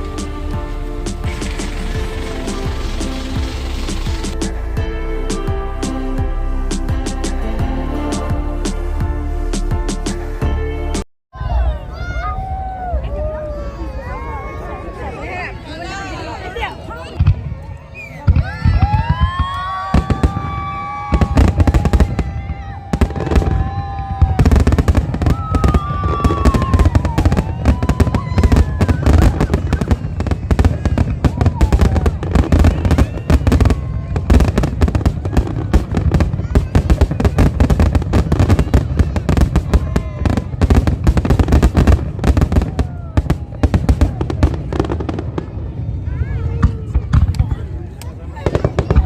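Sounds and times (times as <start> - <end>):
fireworks bangs and crackles: 0.0 - 6.0, 16.6 - 49.0.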